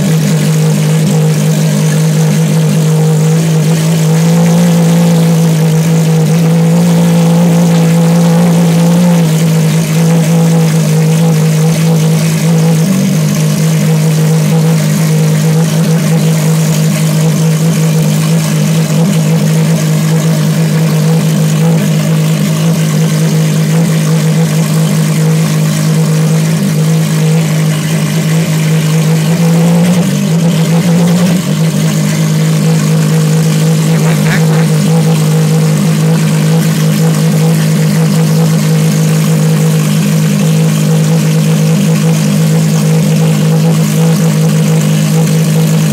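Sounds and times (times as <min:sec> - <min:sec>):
car engine running at fast idle: 0:00.0 - 0:45.9.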